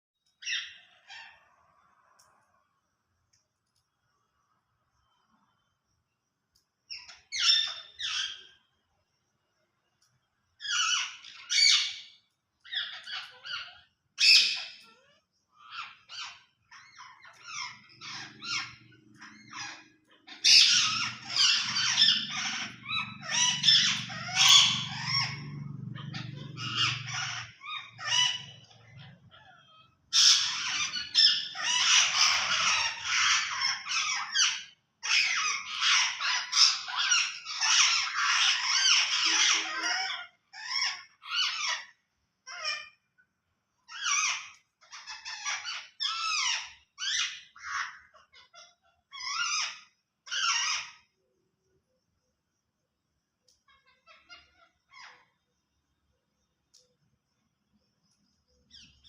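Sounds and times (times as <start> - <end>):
parrot squawking: 0.4 - 1.5, 10.6 - 12.1, 12.7 - 43.0, 43.8 - 51.1, 53.7 - 55.4.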